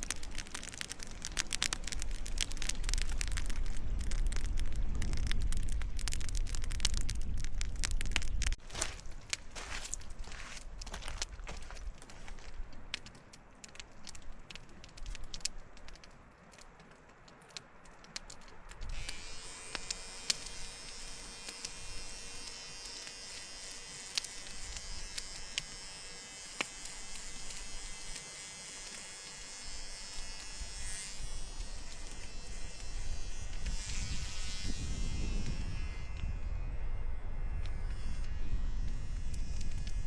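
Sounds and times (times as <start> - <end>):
electric trimmer buzzing: 19.0 - 36.2.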